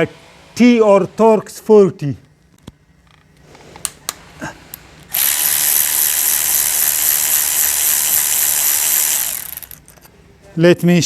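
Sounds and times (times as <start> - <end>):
power tool running: 5.1 - 9.9.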